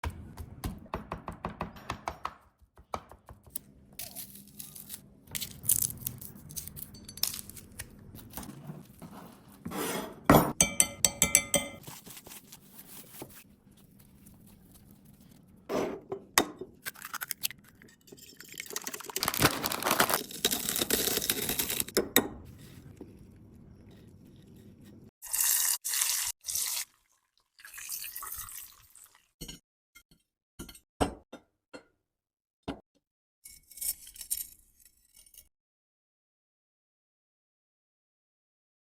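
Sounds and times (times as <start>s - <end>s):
dishes clinking: 9.7s - 11.8s
crisp crunches: 19.1s - 21.9s.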